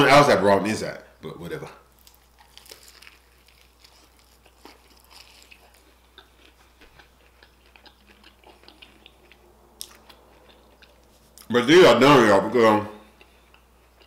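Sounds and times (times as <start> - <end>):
crunchy chewing: 1.9 - 11.5, 13.0 - 14.0.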